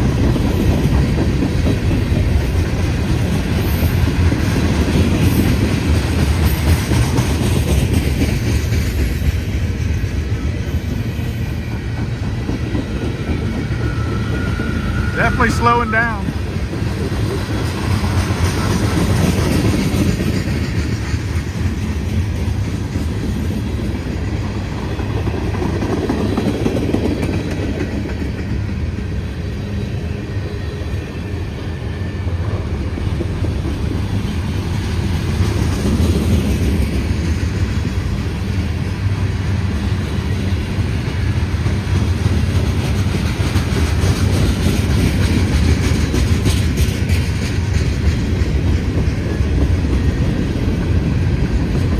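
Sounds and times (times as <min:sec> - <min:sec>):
freight train rumbling past: 0:00.0 - 0:51.9
wheels clicking over rail joints: 0:39.8 - 0:51.9.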